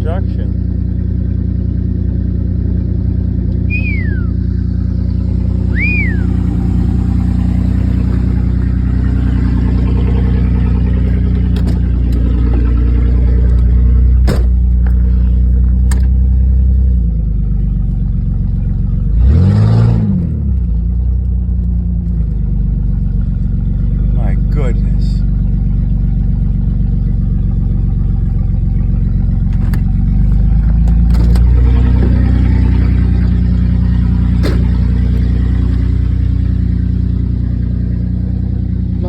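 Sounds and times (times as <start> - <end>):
vehicle engine running: 0.0 - 39.0
short falling chirps: 3.6 - 4.7, 5.7 - 6.4.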